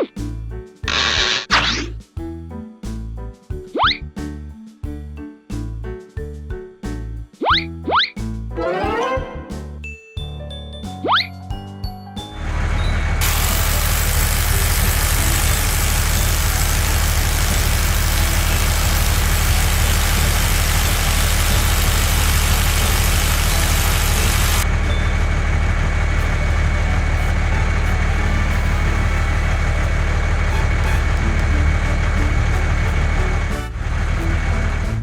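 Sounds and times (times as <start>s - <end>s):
heavy vehicle engine idling: 12.4s - 34.9s
loud hiss: 13.2s - 24.8s.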